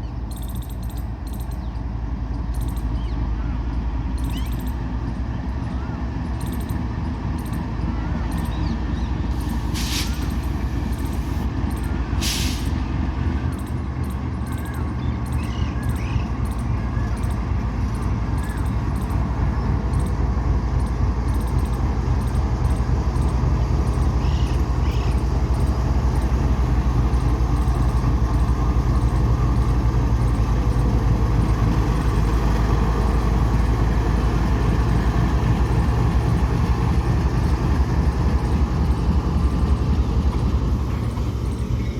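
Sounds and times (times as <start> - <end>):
train wagons rumbling on rails: 0.0 - 41.9
short hisses: 9.4 - 10.6, 12.2 - 12.8.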